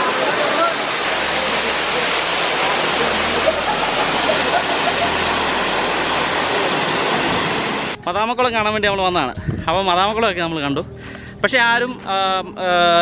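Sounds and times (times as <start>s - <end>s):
waterfall rushing: 0.0s - 8.1s.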